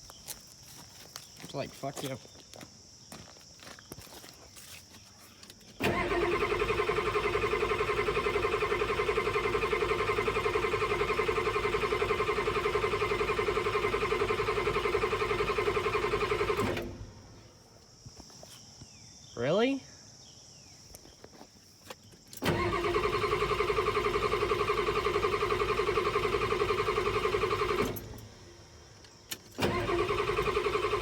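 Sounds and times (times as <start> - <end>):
starter motor whine: 5.8 - 17.3, 22.4 - 28.5, 29.3 - 31.0
diesel engine cranking: 5.8 - 17.4, 22.3 - 31.0.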